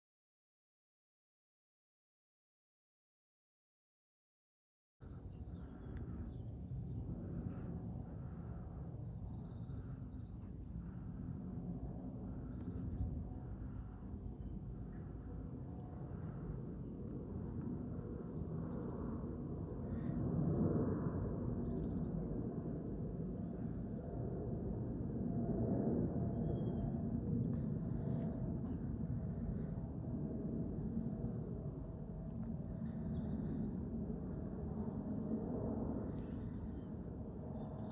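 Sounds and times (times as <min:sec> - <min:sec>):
steady low rumble: 0:05.0 - 0:37.9
small birds chirping: 0:05.1 - 0:11.3.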